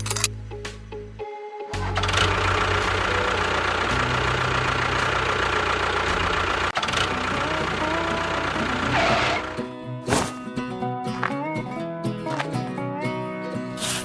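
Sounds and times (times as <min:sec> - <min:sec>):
vehicle engine knocking: 0:01.8 - 0:09.4.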